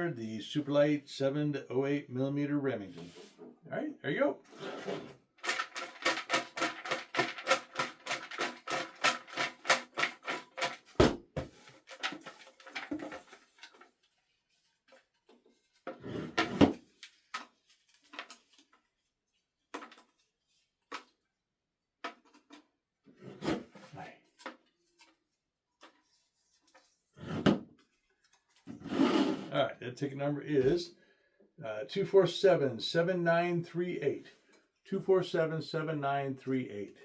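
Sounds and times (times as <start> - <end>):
raffle drum clicking and rattling: 5.4 - 11.1, 11.7 - 13.8
knocks and rustles: 5.4 - 13.9
heavy thump: 11.0 - 11.5.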